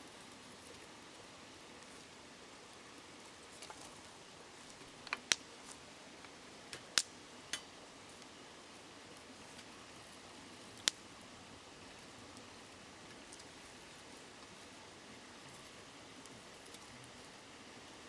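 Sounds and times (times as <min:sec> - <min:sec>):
campfire popping: 0:04.6 - 0:08.3, 0:10.6 - 0:11.1.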